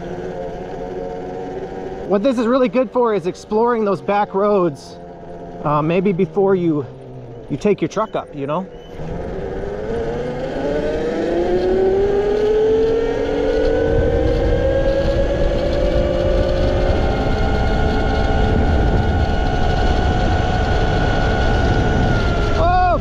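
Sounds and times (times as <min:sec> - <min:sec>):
electric motor whine: 0:00.0 - 0:23.0
wind rumble on microphone: 0:08.8 - 0:23.0.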